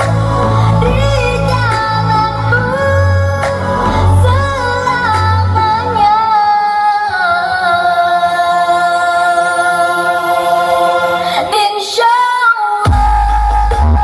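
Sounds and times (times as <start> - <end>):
heavy bass: 0.0 - 6.3, 12.9 - 14.0
loud music on sound system: 0.0 - 14.0.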